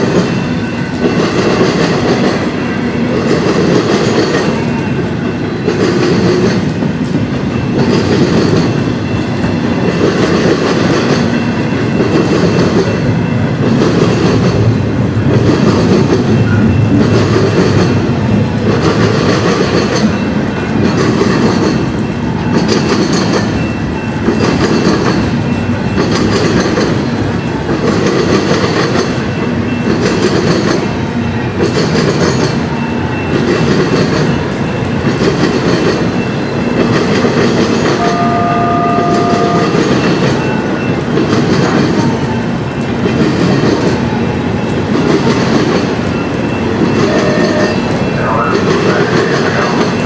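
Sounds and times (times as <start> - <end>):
train wheels clattering: 0.0 - 50.0
two-note tone: 38.0 - 40.6.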